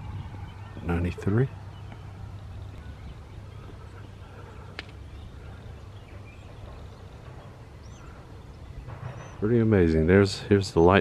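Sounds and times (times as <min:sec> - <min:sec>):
faint bird chirps: 0:00.0 - 0:10.5
low rumble: 0:00.0 - 0:10.7.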